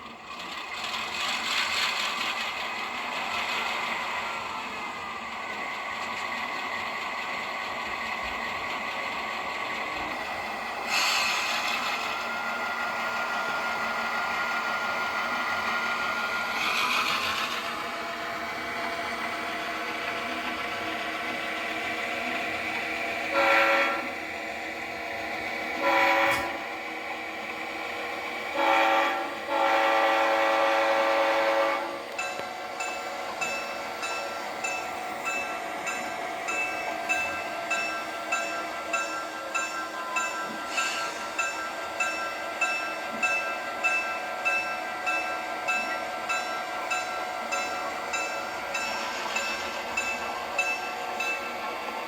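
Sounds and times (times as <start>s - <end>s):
short hisses: 10.9s - 11.7s
locomotive horn blasts: 23.3s - 24.2s, 25.8s - 26.6s, 28.5s - 32.0s.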